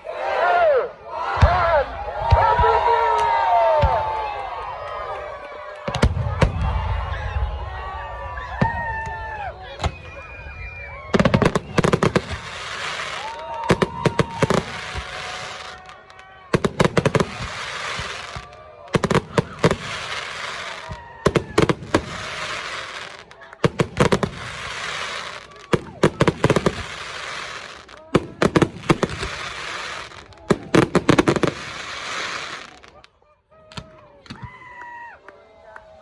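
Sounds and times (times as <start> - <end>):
fireworks bangs: 5.8 - 33.1
fireworks crackling hiss: 11.3 - 33.0.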